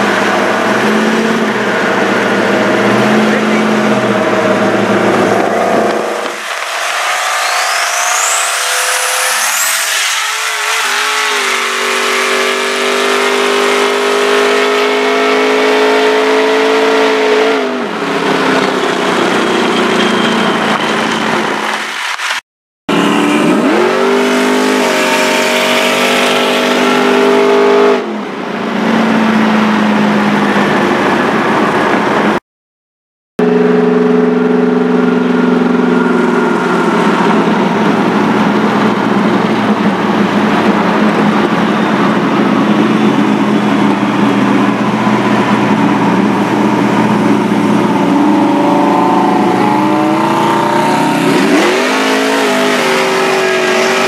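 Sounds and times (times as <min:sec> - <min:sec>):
car engine accelerating: 0:00.0 - 0:21.8, 0:22.9 - 0:32.4, 0:33.4 - 0:54.0
road and wind noise: 0:00.0 - 0:32.4, 0:33.4 - 0:54.0.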